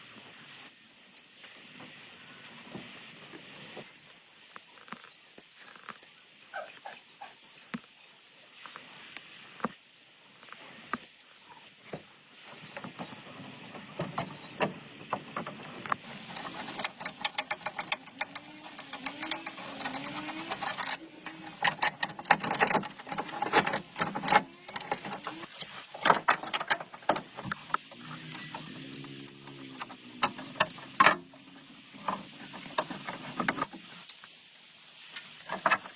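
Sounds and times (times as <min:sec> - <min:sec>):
hand tools clinking on metal: 0:16.1 - 0:25.4.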